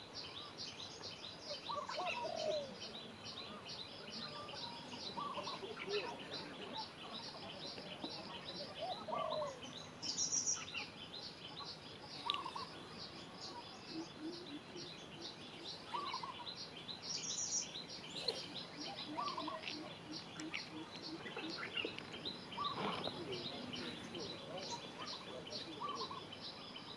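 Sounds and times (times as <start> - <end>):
birds chirping: 0.0 - 26.9
low bird call: 12.2 - 26.7.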